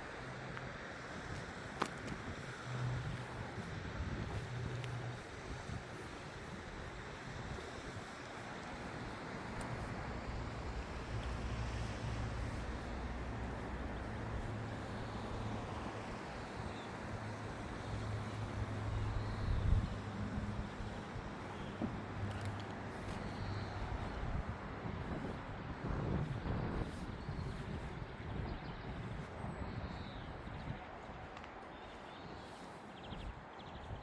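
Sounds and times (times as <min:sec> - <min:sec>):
low engine hum: 0:00.0 - 0:31.2
distant traffic: 0:00.0 - 0:34.0.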